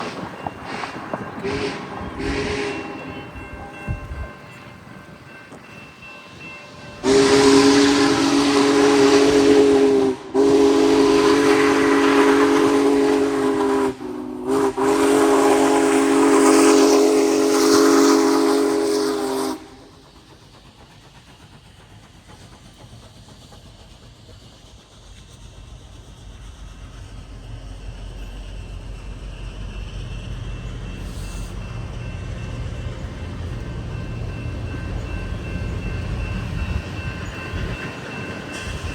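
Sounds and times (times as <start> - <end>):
hissing steam: 0.0 - 38.9
train running: 0.0 - 38.9
steam whistle blasts: 0.7 - 3.3, 7.0 - 20.0.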